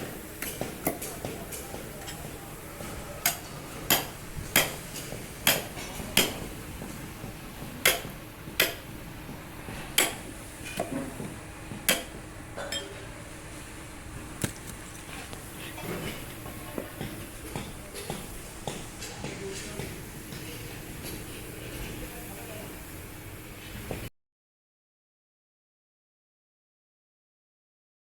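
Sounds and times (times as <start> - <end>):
hammer striking metal: 3.2 - 4.8, 7.8 - 8.8, 10.0 - 11.1, 11.8 - 12.9, 17.0 - 18.9.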